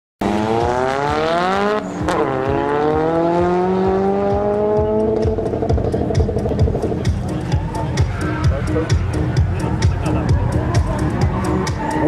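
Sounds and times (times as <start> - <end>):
car engines revving hard: 0.2 - 8.4.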